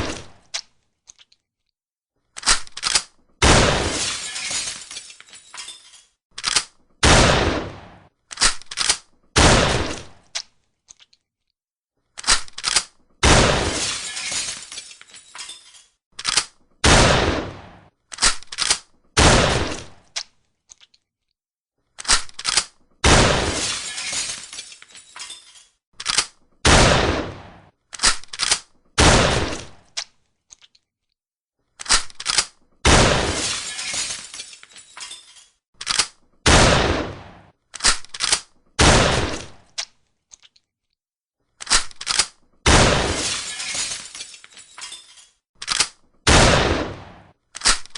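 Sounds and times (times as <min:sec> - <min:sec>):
gun reloading clacks: 0:02.3 - 0:03.2, 0:05.5 - 0:06.9, 0:08.3 - 0:09.2, 0:12.2 - 0:13.1, 0:15.4 - 0:16.8, 0:18.1 - 0:19.0, 0:22.0 - 0:22.9, 0:25.2 - 0:26.5, 0:27.9 - 0:28.8, 0:31.8 - 0:32.7, 0:35.0 - 0:36.3, 0:37.7 - 0:38.7, 0:41.6 - 0:42.4, 0:44.8 - 0:46.2, 0:47.5 - 0:47.9
shotgun firing: 0:03.4 - 0:04.0, 0:07.0 - 0:08.1, 0:09.4 - 0:10.2, 0:13.2 - 0:13.8, 0:16.8 - 0:17.9, 0:19.2 - 0:20.0, 0:23.0 - 0:23.6, 0:26.6 - 0:27.7, 0:29.0 - 0:29.8, 0:32.8 - 0:33.4, 0:36.5 - 0:37.5, 0:38.8 - 0:39.6, 0:42.7 - 0:43.2, 0:46.3 - 0:47.3.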